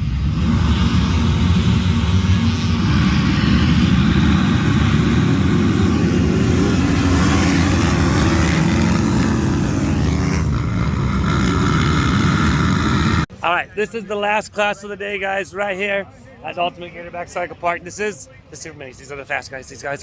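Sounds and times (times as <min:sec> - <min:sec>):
motocross bikes racing past: 0:00.0 - 0:13.3.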